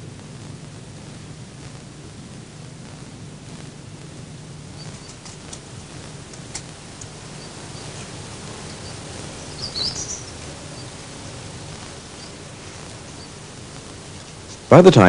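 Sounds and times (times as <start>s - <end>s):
low hum: 0.0s - 15.0s
high bird chirps: 7.1s - 13.6s.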